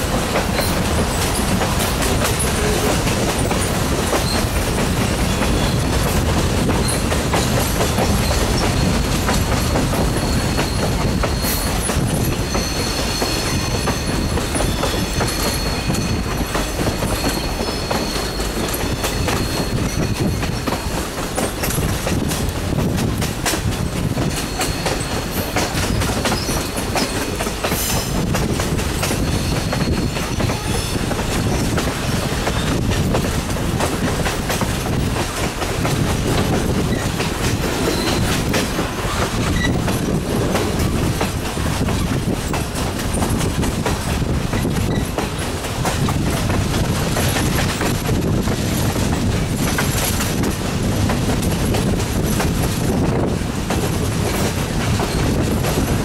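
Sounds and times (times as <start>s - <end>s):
train wheels rumbling on rails: 0.0s - 56.0s
high wheel squeal: 4.2s - 5.9s, 8.2s - 20.7s, 29.0s - 32.8s, 37.7s - 40.2s.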